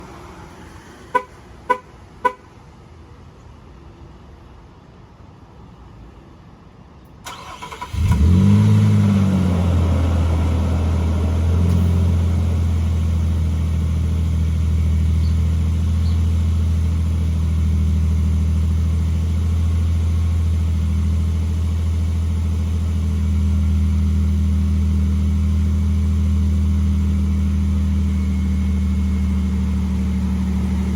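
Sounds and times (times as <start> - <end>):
engine starter cranking: 7.2 - 8.4
engine starting and idling: 7.2 - 14.0.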